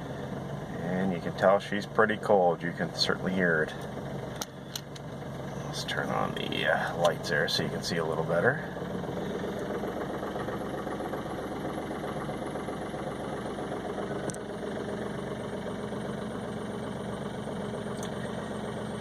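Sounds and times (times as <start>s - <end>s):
diesel car engine idling: 0.0s - 19.0s.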